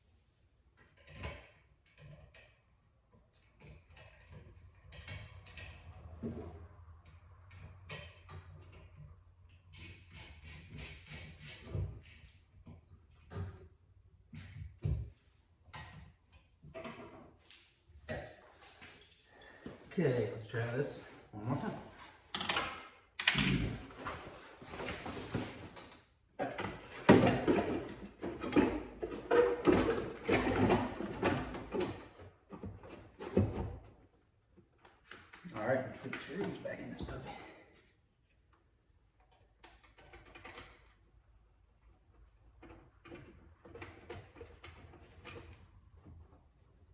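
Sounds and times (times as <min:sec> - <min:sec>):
tools clicking and knocking: 0:00.8 - 0:06.1, 0:22.3 - 0:23.9, 0:41.8 - 0:46.3.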